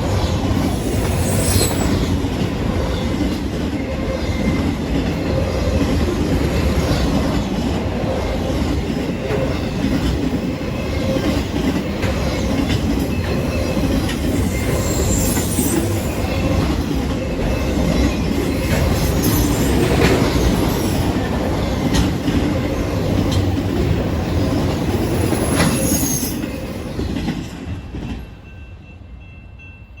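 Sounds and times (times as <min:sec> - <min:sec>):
train wheels rumbling on rail: 0:00.0 - 0:30.0
rail joint clicks: 0:00.1 - 0:29.0
high-pitched wheel squeals: 0:00.8 - 0:02.2, 0:13.5 - 0:17.8, 0:25.2 - 0:26.8.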